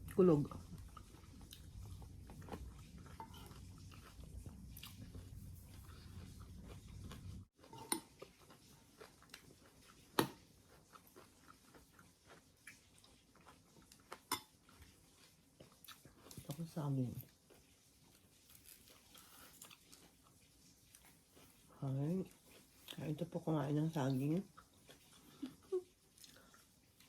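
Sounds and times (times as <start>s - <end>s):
low steady rumble: 0.0s - 7.5s
person chewing crunchy cereal: 0.0s - 23.0s, 24.4s - 27.0s.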